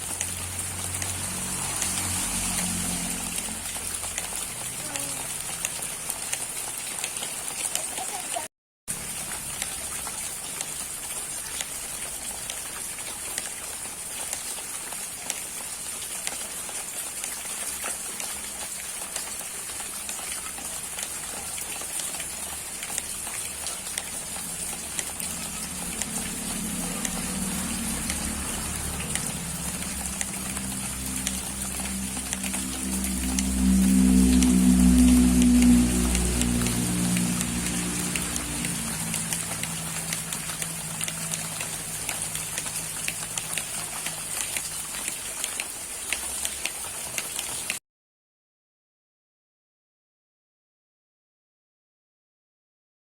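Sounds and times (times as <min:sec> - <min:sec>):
heavy rain pattering: 0:00.0 - 0:47.8.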